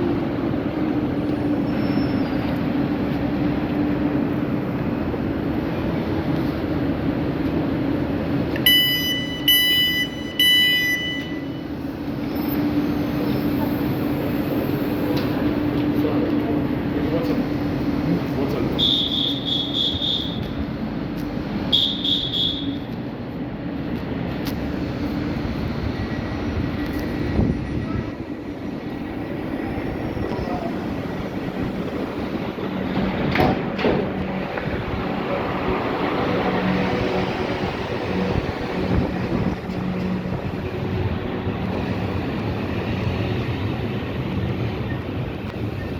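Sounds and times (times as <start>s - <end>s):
train rumble and hum: 0.0s - 45.9s
electronic warning beeps: 8.7s - 11.6s.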